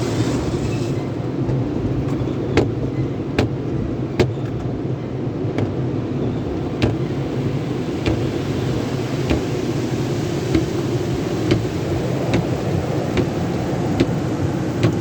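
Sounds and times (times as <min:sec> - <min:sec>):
spraying water: 0:00.0 - 0:03.8, 0:05.5 - 0:15.0
machinery rumble: 0:00.0 - 0:15.0
sharp knocks: 0:02.1 - 0:04.7, 0:05.6 - 0:05.8, 0:06.8 - 0:07.2, 0:08.0 - 0:08.4, 0:09.3 - 0:09.6, 0:10.5 - 0:10.8, 0:11.4 - 0:15.0.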